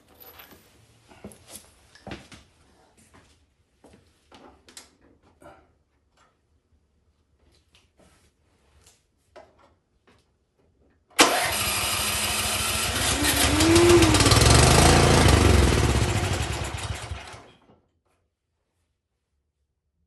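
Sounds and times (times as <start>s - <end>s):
snowblower engine surging: 11.2s - 17.5s.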